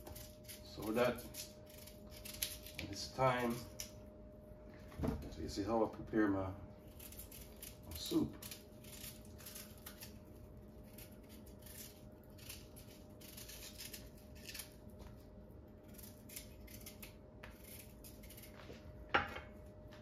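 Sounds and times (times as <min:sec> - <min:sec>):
knife scraping a vegetable: 0:00.0 - 0:03.9, 0:06.8 - 0:14.8, 0:15.8 - 0:18.8.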